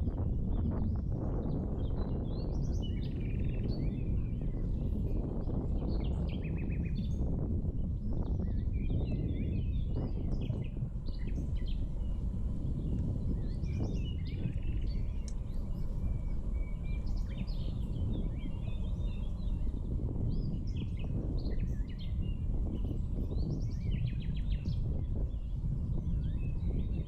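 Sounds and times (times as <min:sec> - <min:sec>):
small birds chirping: 0:00.1 - 0:27.0.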